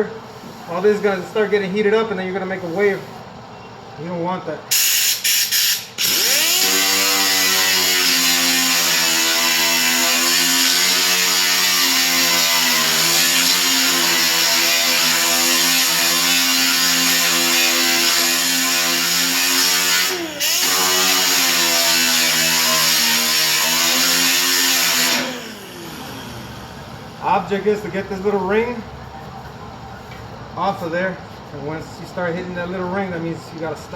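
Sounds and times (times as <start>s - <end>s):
electric grinder grinding metal: 6.0s - 26.6s.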